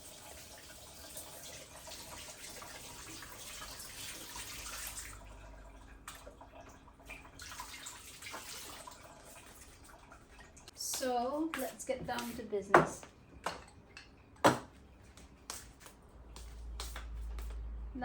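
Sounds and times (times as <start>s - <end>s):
water running from a tap: 0.0s - 12.5s.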